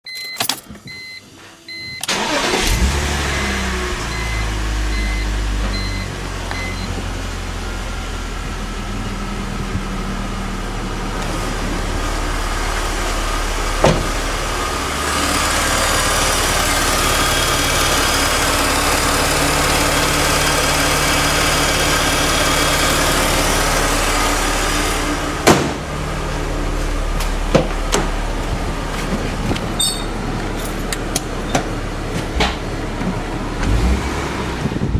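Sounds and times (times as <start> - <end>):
car engine starting and idling: 0.3 - 34.9
repeating beep: 4.1 - 7.0.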